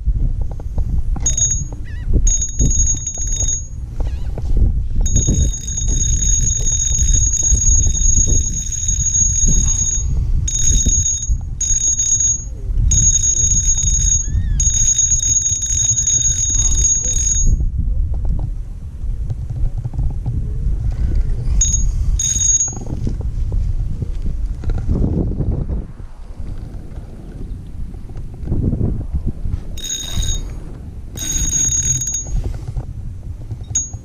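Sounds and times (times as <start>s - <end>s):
wind rumbling on microphone: 0.0s - 34.0s
high ringing whine: 1.1s - 17.8s, 21.5s - 23.2s, 29.8s - 32.8s, 33.5s - 34.0s.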